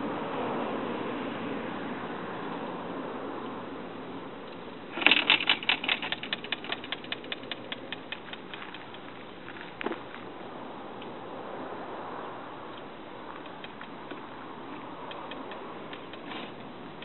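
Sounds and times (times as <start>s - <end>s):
run of sharp clicks: 4.5s - 9.2s, 12.7s - 17.0s.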